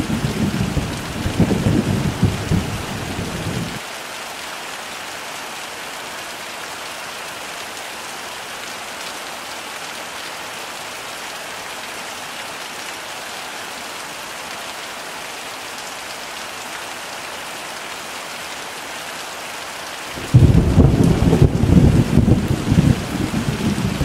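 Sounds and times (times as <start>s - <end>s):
thunder rumble: 0.0s - 3.8s, 20.2s - 24.0s
heavy rain falling: 0.0s - 24.0s.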